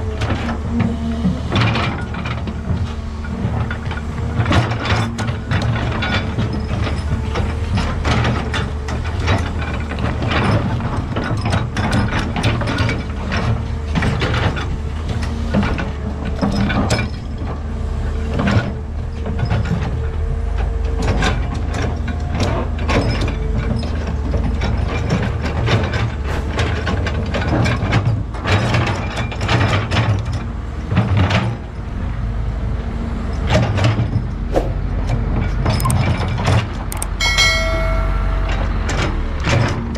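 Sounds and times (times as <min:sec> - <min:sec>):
excavator diesel engine running: 0:00.0 - 0:39.9
machine clanks and knocks: 0:22.4 - 0:30.4, 0:35.4 - 0:39.9.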